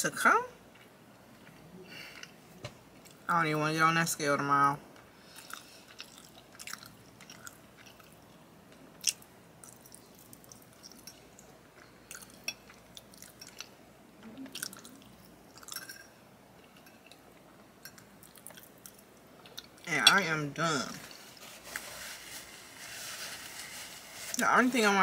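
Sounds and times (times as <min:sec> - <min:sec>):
person chewing food: 0:05.3 - 0:08.3, 0:08.9 - 0:13.8, 0:14.4 - 0:19.8.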